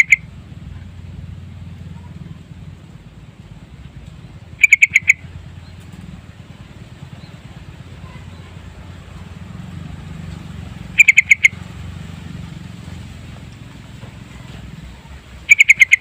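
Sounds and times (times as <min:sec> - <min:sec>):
bird chirping calls: 0:00.0 - 0:00.3, 0:04.5 - 0:06.4, 0:07.0 - 0:09.4, 0:10.3 - 0:11.8, 0:14.3 - 0:16.0
steady low rumble: 0:00.0 - 0:16.0.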